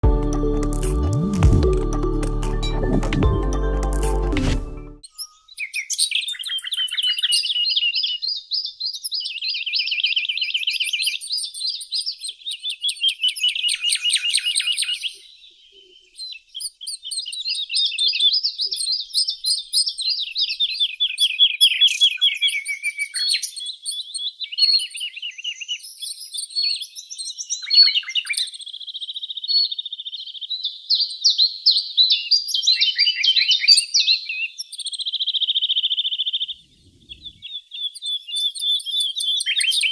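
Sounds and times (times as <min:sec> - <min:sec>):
songbird trilling: 0:31.8 - 0:39.9.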